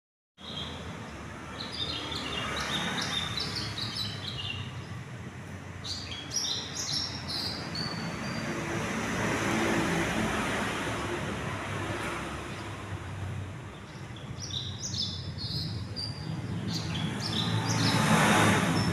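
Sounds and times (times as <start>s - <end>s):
small birds chirping: 0.4s - 8.9s, 12.4s - 18.9s.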